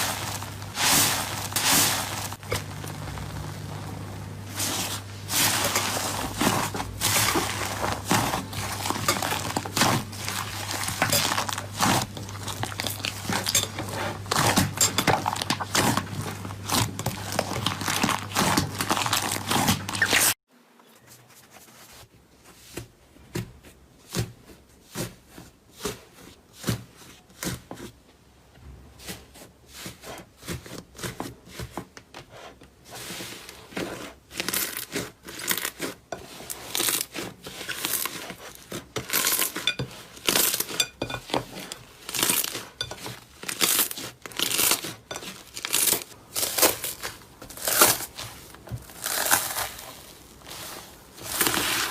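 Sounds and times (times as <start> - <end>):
dense loud crackle: 0.0 - 13.2.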